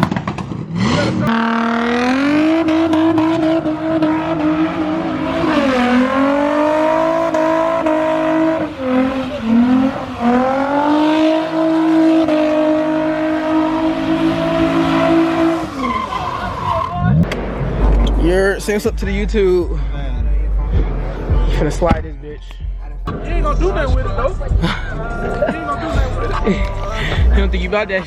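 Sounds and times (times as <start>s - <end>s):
car engine at high revs: 0.0s - 18.6s.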